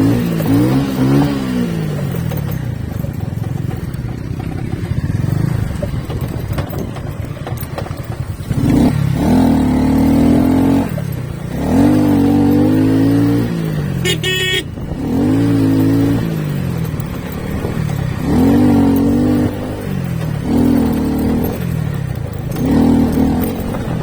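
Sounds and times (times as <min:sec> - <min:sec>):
motorcycle engine revving: 0:00.0 - 0:24.0
horn beep: 0:14.0 - 0:14.8.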